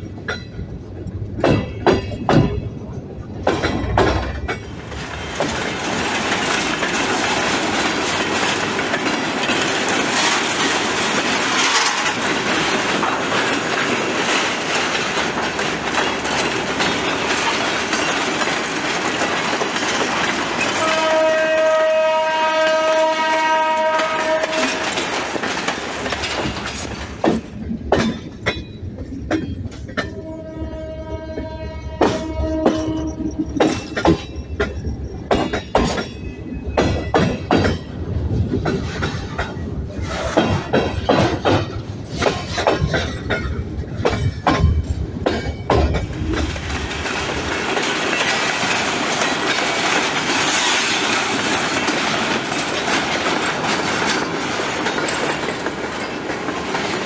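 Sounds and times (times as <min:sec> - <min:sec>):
diesel locomotive rumbling: 0:00.0 - 0:57.0
wheels clattering on rails: 0:00.0 - 0:57.0
train horn: 0:20.8 - 0:24.9, 0:30.2 - 0:33.3.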